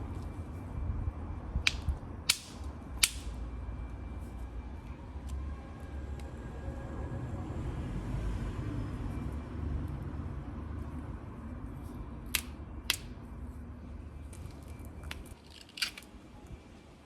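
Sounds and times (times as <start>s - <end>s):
hammer striking flint: 1.7s - 3.4s, 12.3s - 13.2s.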